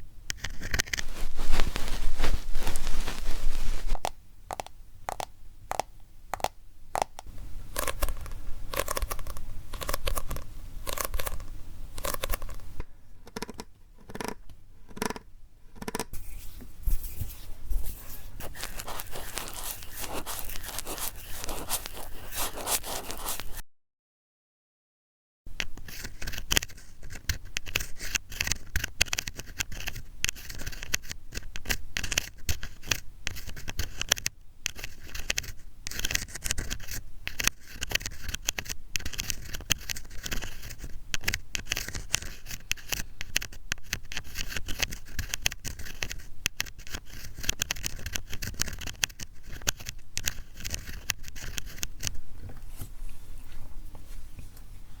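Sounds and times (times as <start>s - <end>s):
ear pick scratching microphone: 0.4s - 4.7s, 16.1s - 23.6s.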